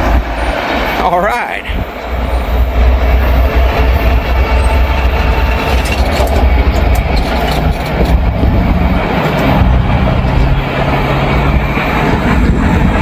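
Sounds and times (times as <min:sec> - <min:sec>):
freight train rumbling on rails: 0:00.0 - 0:13.0
sharp rail clicks: 0:03.2 - 0:12.0.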